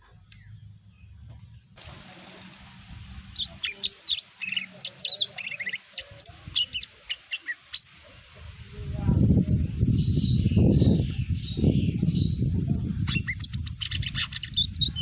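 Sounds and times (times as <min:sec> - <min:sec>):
faint steady hiss: 0:01.8 - 0:09.9
bird chirping and trilling: 0:03.3 - 0:08.0, 0:09.8 - 0:15.0.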